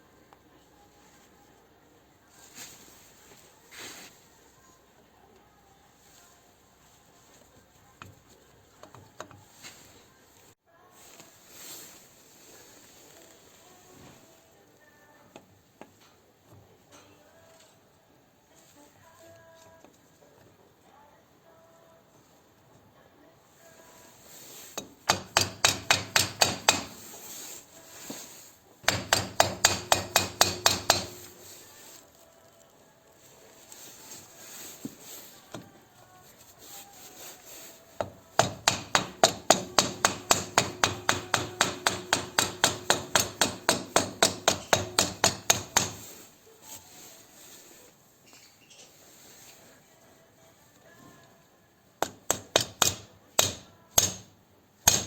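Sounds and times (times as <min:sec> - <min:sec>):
hammer tapping on metal: 0:24.8 - 0:27.1, 0:28.8 - 0:31.4, 0:38.0 - 0:46.1, 0:52.0 - 0:55.0.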